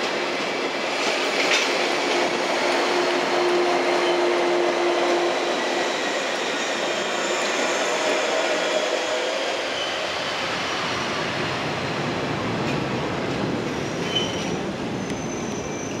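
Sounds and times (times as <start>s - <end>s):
train wheel and rail rumble: 0.0s - 16.0s
faint high wheel squeal: 9.6s - 10.1s, 13.7s - 16.0s.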